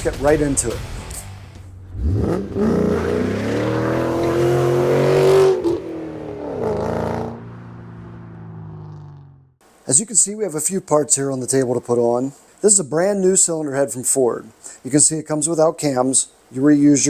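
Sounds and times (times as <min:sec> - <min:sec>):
car engine revving: 0:01.6 - 0:09.6.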